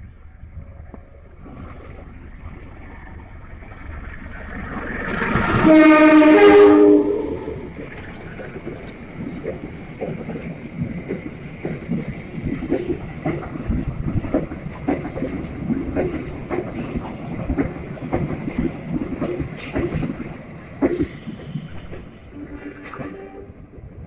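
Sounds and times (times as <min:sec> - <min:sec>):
train wheels clattering: 0:07.2 - 0:23.4.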